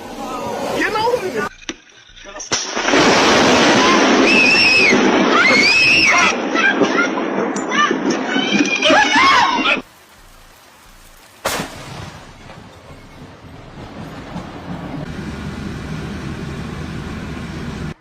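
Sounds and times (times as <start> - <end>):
sudden crack: 11.3 - 12.7.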